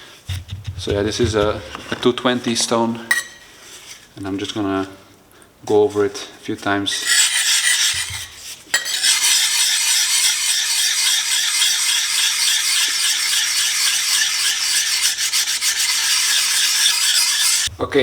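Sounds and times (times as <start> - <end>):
blade rasping on sharpening stone: 6.9 - 17.7.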